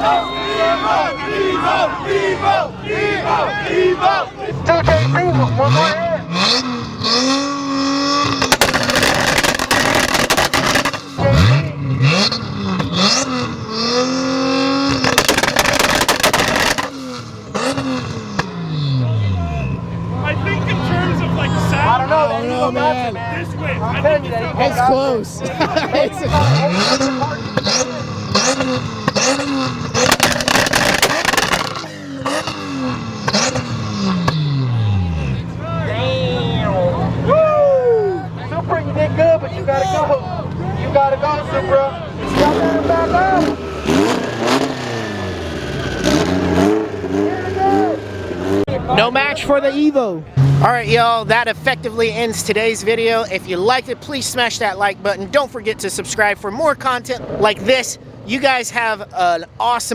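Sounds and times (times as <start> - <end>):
car engine revving: 0.0 - 59.9
exhaust bangs and crackles: 4.5 - 37.4, 38.2 - 59.9
car engine pops and bangs: 8.2 - 11.3, 12.8 - 13.5, 14.9 - 18.6, 26.9 - 34.5.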